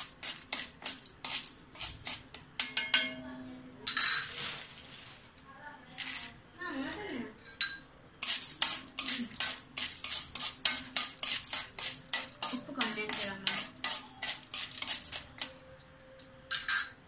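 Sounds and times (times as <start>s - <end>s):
metal spoon scraping a pan: 0.0s - 3.2s, 8.2s - 15.6s.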